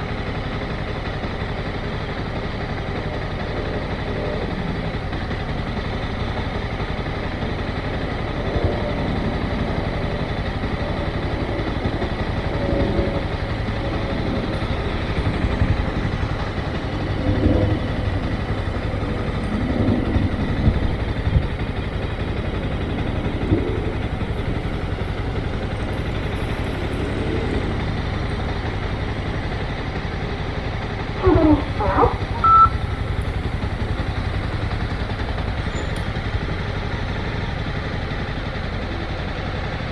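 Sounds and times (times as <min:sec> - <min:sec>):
motorcycle engine running: 0:00.0 - 0:39.9
road and wind noise: 0:00.0 - 0:39.9
high squeaky chirps: 0:31.2 - 0:32.8
short beep: 0:31.8 - 0:32.9.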